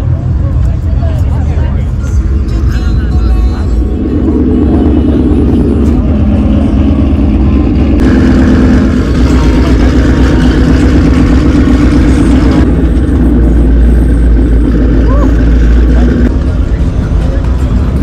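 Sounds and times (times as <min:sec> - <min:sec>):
car engine running loudly: 0:00.0 - 0:18.0.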